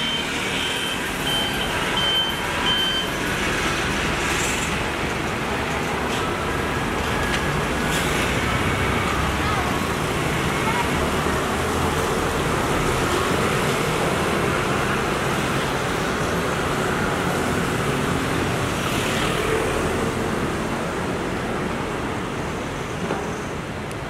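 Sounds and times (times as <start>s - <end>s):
street traffic noise: 0.0s - 24.0s.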